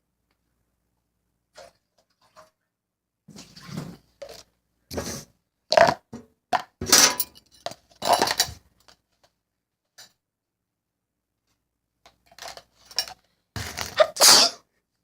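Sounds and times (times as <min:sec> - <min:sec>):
dishes and spoons clinking: 0:06.8 - 0:08.6.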